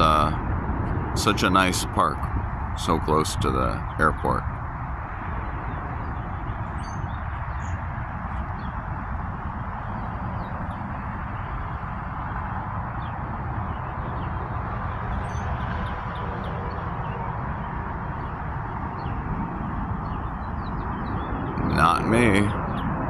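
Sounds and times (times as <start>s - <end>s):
outdoor rumble and hiss: 0.0s - 23.0s
small birds chirping: 1.2s - 23.0s.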